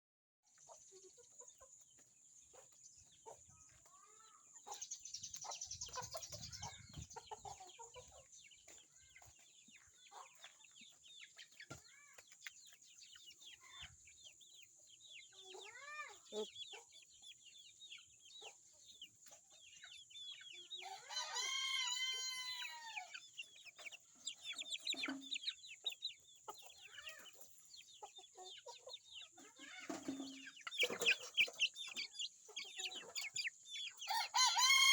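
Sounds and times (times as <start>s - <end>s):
chickens clucking: 0.5s - 34.9s
rooster crowing: 20.9s - 23.1s, 34.1s - 34.9s.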